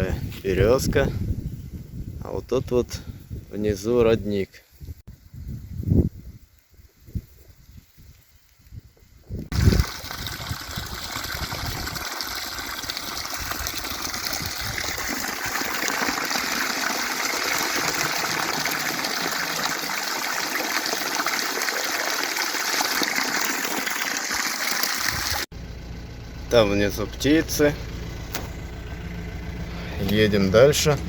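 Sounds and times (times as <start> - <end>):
spring water running: 9.5 - 25.5.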